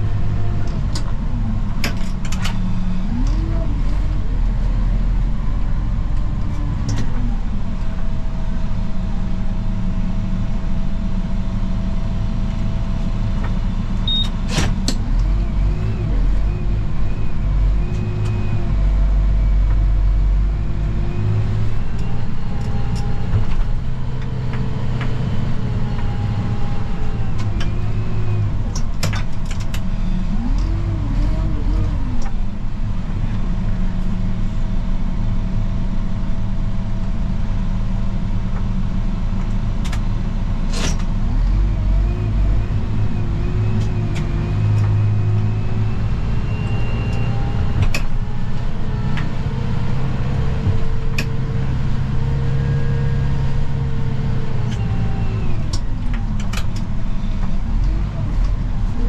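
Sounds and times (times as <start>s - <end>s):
tractor engine revving: 40.7s - 59.0s.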